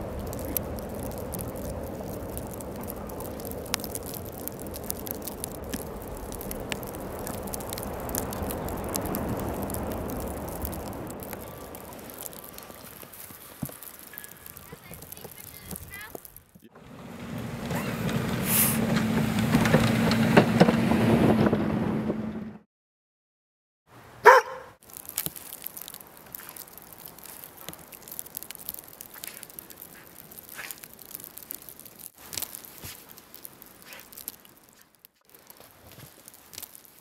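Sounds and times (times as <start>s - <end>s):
vehicle engine humming: 0.0s - 13.3s, 16.7s - 22.6s
faint crackling and clicks: 0.0s - 16.7s, 24.8s - 37.0s
dog barking: 24.2s - 24.8s.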